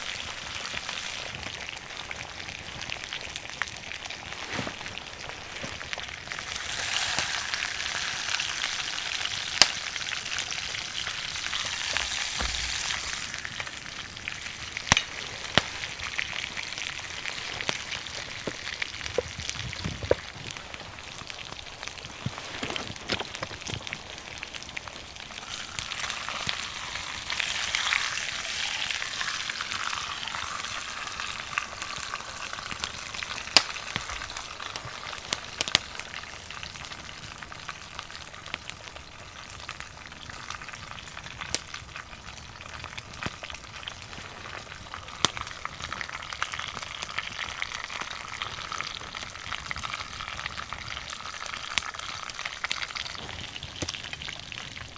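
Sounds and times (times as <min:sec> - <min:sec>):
steak sizzling: 0:00.0 - 0:36.9
burning wood crackling: 0:00.0 - 0:54.9.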